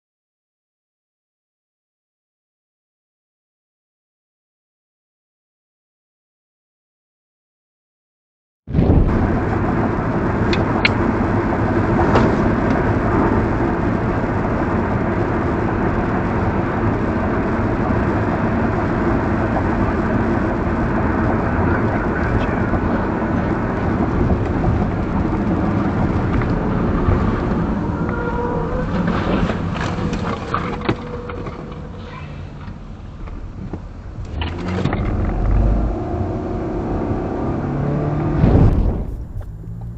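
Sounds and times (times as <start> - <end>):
car road and engine noise: 8.7 - 39.9.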